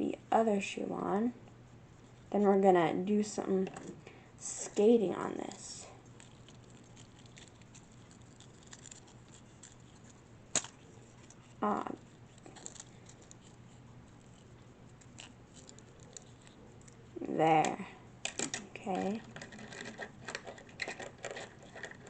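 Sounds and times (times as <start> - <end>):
plastic toy handling ticks: 6.1 - 17.0, 17.6 - 22.0.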